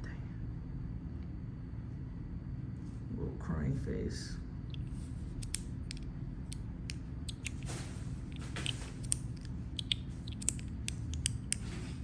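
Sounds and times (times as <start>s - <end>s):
fidget toy clicking: 9.0s - 11.6s.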